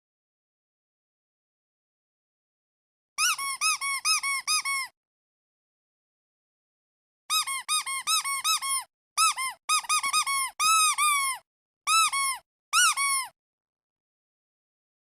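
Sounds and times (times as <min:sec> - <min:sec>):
squeaky duck toy squeaks: 0:03.2 - 0:05.0, 0:07.3 - 0:13.4.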